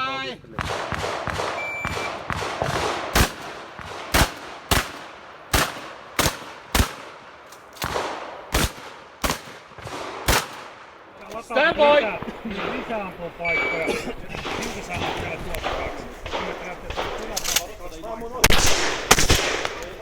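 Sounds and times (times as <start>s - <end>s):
shotgun shots with echo: 0.5s - 17.8s, 18.4s - 20.0s
electronic shot-timer beep: 1.6s - 2.1s, 13.4s - 13.9s.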